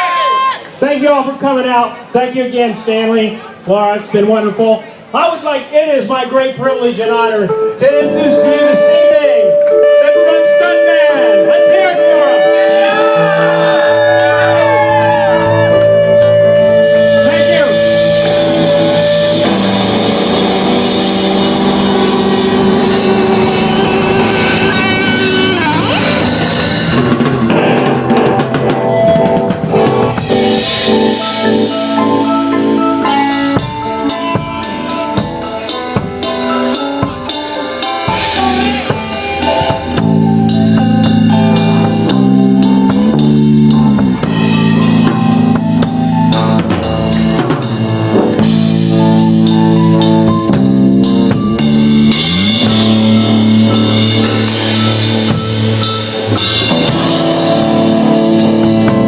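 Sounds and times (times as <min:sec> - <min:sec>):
sustained band chords: 0:07.2 - 0:59.0
drum kit beat: 0:07.5 - 0:59.0.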